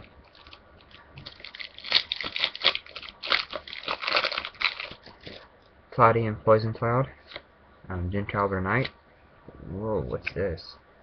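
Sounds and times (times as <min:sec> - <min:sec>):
foil wrapper tearing and crumpling: 0:00.3 - 0:05.4.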